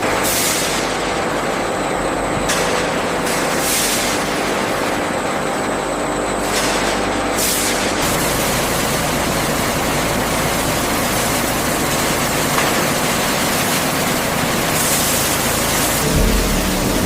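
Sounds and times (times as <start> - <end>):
industrial machinery rushing: 12.8 - 17.0
bright hiss: 12.9 - 17.0
deep hum: 15.9 - 17.0.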